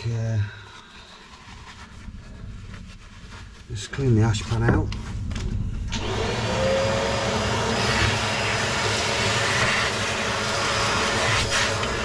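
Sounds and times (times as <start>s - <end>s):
vacuum cleaner running: 5.8s - 12.0s.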